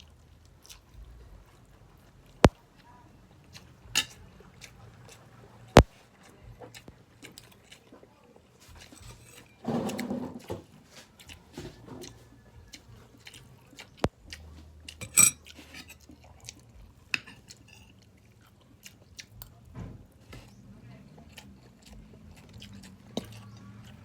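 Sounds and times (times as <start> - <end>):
soft chewing: 0.0 - 24.0
utensils scraping on plate: 8.8 - 10.6, 15.0 - 16.0.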